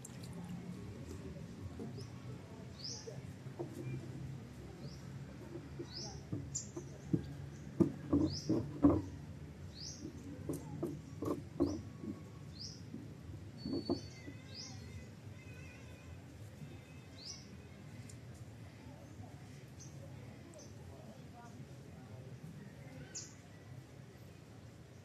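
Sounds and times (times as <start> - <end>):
dull knocks: 7.1 - 9.1.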